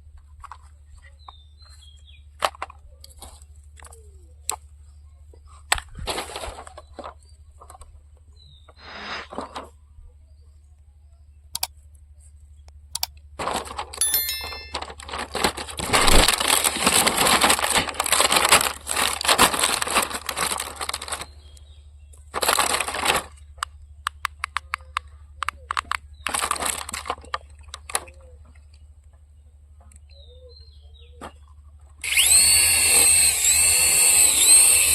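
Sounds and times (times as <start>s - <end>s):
sharp clicks: 11.5s - 11.8s, 12.7s - 13.2s, 23.6s - 28.1s
packaging rustling and tearing: 13.4s - 21.5s, 22.3s - 23.4s, 26.2s - 28.1s.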